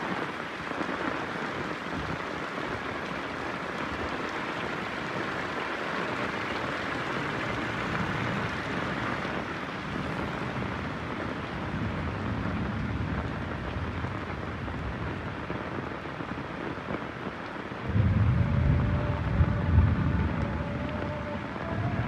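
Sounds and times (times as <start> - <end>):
heavy rain falling: 0.0 - 22.0
thunder rumbling: 9.8 - 16.8, 17.8 - 22.0.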